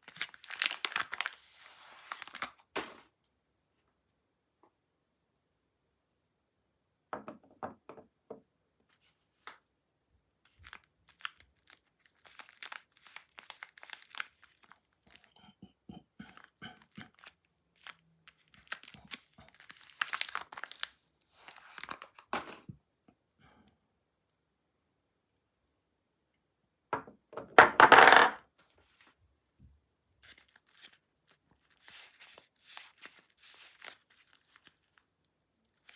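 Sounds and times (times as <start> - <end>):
wrapper crinkling and tearing: 0.0 - 2.8, 10.5 - 15.4, 16.4 - 22.3, 30.2 - 35.9.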